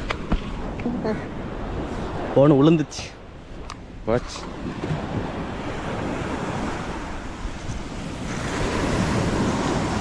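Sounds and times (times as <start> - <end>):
sea waves breaking on beach: 0.0 - 10.0
wind on microphone: 3.2 - 10.0.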